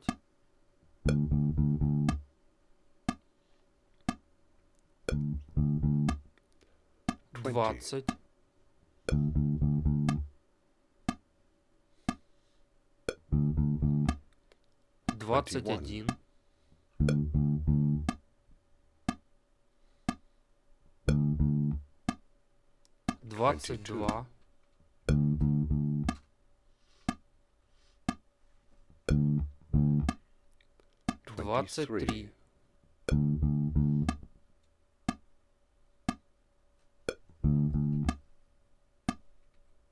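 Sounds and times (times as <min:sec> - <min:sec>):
click track ticking: 0:00.0 - 0:00.2, 0:01.0 - 0:02.3, 0:04.0 - 0:04.2, 0:05.1 - 0:06.4, 0:07.1 - 0:08.2, 0:09.1 - 0:10.3, 0:13.1 - 0:16.2, 0:17.0 - 0:18.2, 0:19.1 - 0:19.3, 0:21.1 - 0:22.2, 0:22.8 - 0:24.2, 0:25.1 - 0:26.2, 0:29.0 - 0:30.2, 0:31.0 - 0:31.4, 0:32.0 - 0:32.3, 0:33.1 - 0:34.3, 0:37.1 - 0:38.2
electric bass guitar notes: 0:01.0 - 0:02.3, 0:05.1 - 0:06.3, 0:09.1 - 0:10.3, 0:13.1 - 0:14.2, 0:17.0 - 0:18.2, 0:21.0 - 0:21.9, 0:25.1 - 0:26.2, 0:29.0 - 0:30.2, 0:33.1 - 0:34.3, 0:37.1 - 0:38.2.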